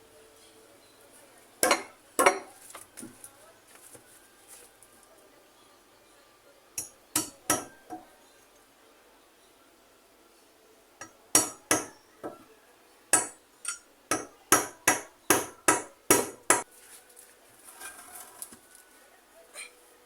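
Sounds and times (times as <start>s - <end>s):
hammer striking: 1.6s - 2.5s, 6.8s - 8.0s, 11.0s - 12.4s, 13.2s - 16.6s.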